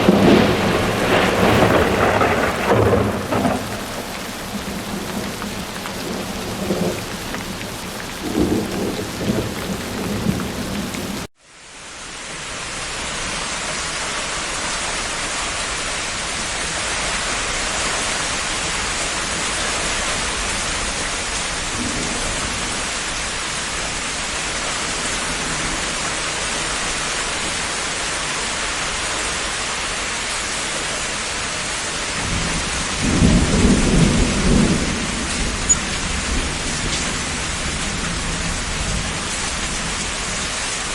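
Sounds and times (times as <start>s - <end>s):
thunder rumbles: 0.0s - 11.3s, 19.5s - 23.4s, 32.2s - 40.9s
heavy rain: 0.0s - 40.9s.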